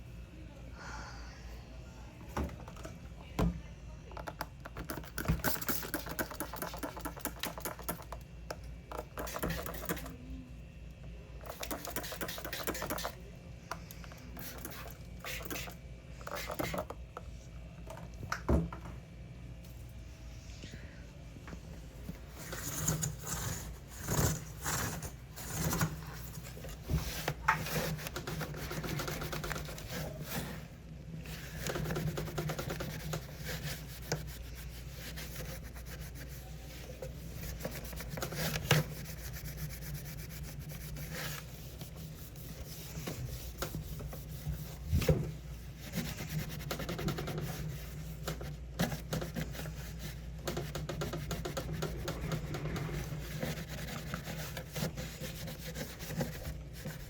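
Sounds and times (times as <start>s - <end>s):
hand scrubbing inside fridge: 22.2s - 57.0s.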